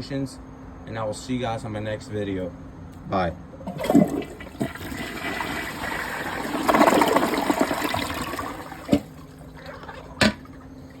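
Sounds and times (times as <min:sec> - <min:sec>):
toilet water running: 0:03.7 - 0:11.0.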